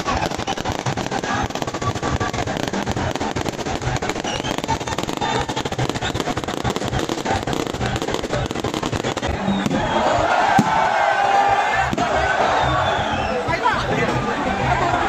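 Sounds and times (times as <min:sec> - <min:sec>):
fireworks bursting overhead: 0:00.0 - 0:14.3.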